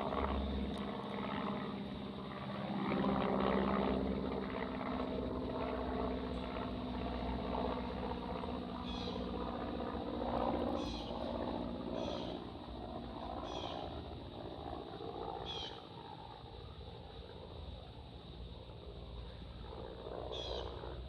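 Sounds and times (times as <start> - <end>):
aircraft engine drone: 0.0 - 21.0.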